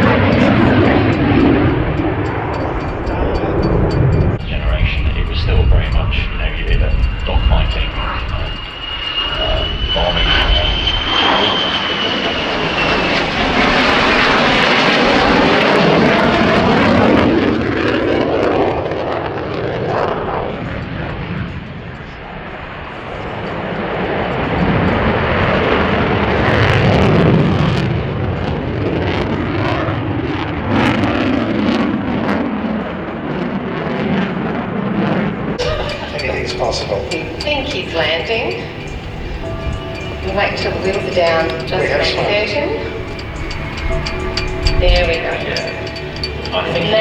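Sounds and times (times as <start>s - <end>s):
high jet whine: 0.0s - 17.0s, 35.6s - 47.0s
fighter jet roar: 0.0s - 19.1s, 33.0s - 47.0s.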